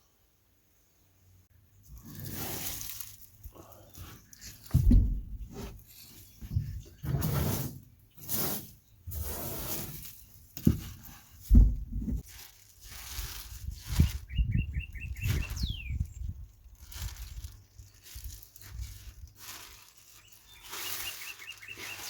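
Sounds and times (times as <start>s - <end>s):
rustling and scraping: 1.8s - 22.0s
heavy knocks: 4.7s - 5.8s, 11.5s - 12.2s
bird chirping: 14.2s - 16.4s, 20.2s - 22.0s.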